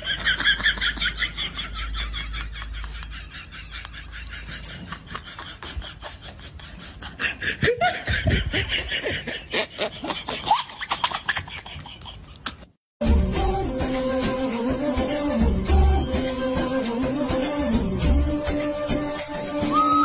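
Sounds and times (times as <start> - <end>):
person laughing: 0.0 - 12.7
music: 13.0 - 20.0.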